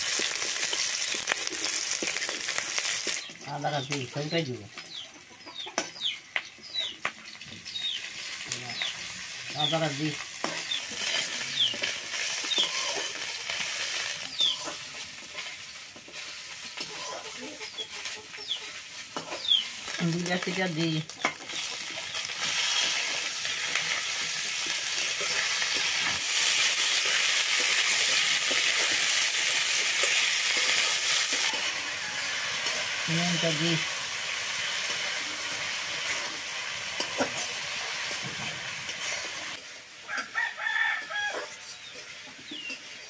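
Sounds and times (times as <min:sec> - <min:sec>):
onions sizzling in hot oil: 0:00.0 - 0:43.0
metal spatula scraping wok: 0:10.1 - 0:40.3.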